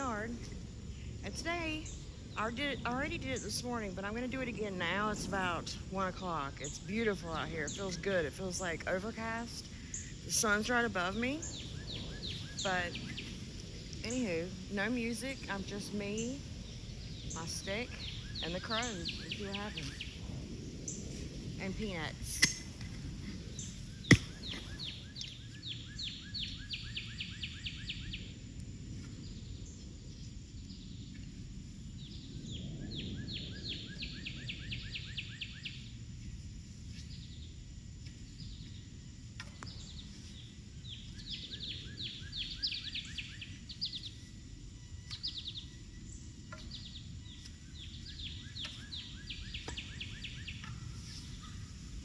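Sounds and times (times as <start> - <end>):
songbird trilling: 0.0 - 20.2, 23.6 - 28.3, 39.4 - 51.8
low outdoor rumble: 0.0 - 52.0.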